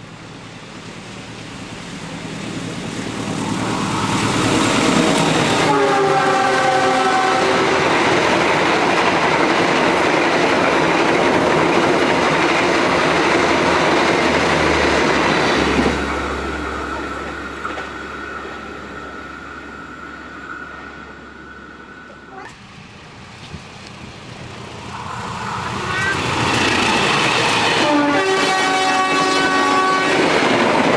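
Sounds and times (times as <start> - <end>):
train passing on rails: 0.0 - 30.9
faint steady high tone: 16.7 - 22.6.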